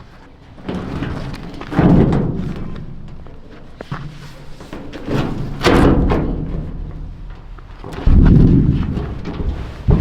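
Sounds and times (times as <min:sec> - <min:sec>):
heavy rumbling thud: 0:05.8 - 0:10.0.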